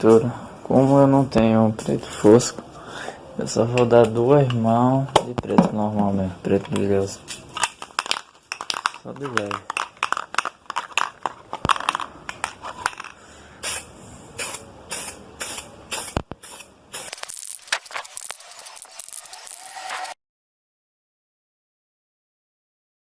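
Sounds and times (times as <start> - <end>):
aerosol spray can hissing: 13.6 - 20.2.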